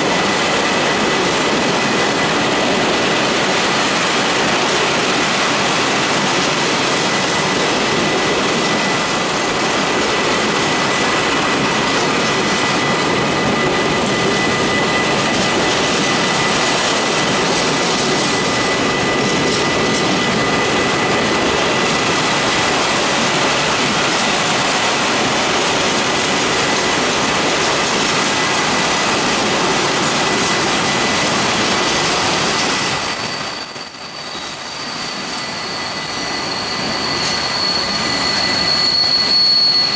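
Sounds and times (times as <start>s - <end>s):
train wheels on rails: 0.0s - 39.9s
faint high steady tone: 32.9s - 39.9s.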